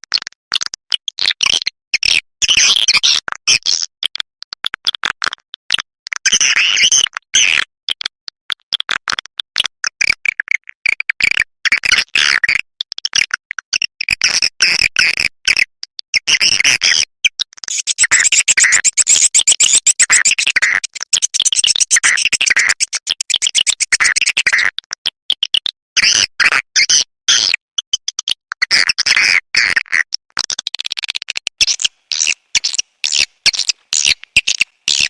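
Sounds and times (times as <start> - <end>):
twittering bird chirps and clicks: 17.6 - 24.7, 31.3 - 35.0.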